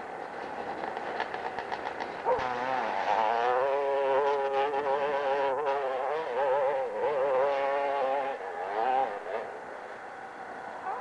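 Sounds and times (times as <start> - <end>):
motorcycle engine buzzing: 1.5 - 9.8.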